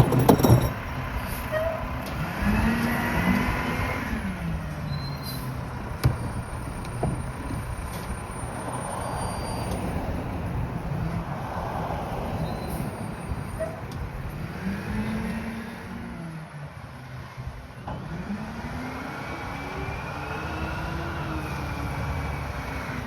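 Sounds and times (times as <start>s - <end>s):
garbage truck diesel engine revving: 0.0s - 8.8s.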